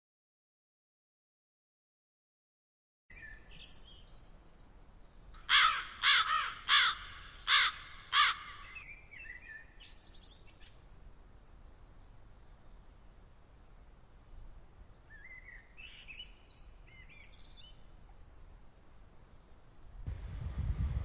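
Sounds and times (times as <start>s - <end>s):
songbirds chirping faintly: 3.1s - 21.0s
crow cawing harshly: 5.5s - 8.8s.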